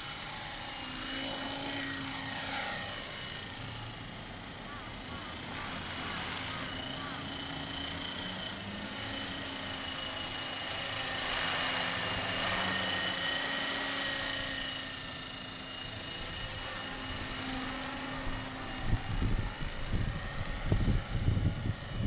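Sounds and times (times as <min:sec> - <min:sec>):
model helicopter motor whine: 0:00.0 - 0:22.0.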